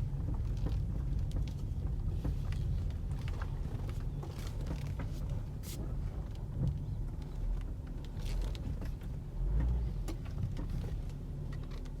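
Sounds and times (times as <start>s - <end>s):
car driving rumble: 0.0s - 12.0s.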